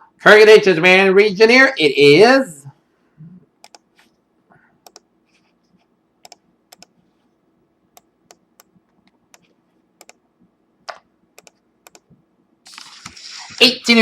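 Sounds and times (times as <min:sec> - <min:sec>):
computer keys clicking: 0:03.6 - 0:03.9, 0:04.8 - 0:05.1, 0:06.2 - 0:07.0, 0:08.0 - 0:10.2, 0:10.9 - 0:12.1.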